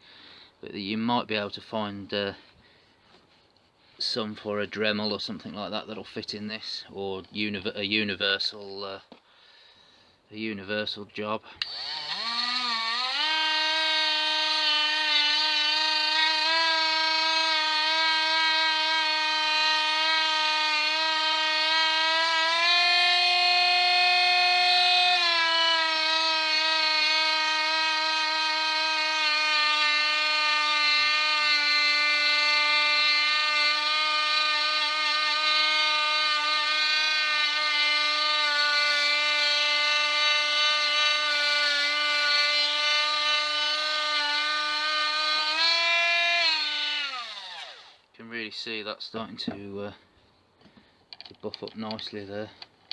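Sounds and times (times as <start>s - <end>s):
grinder motor whine: 11.6s - 48.0s.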